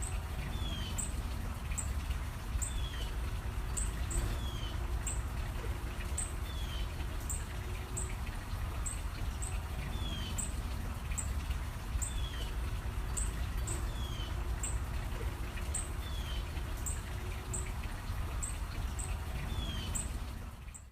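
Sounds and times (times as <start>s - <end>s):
small birds chirping: 18.4s - 20.9s.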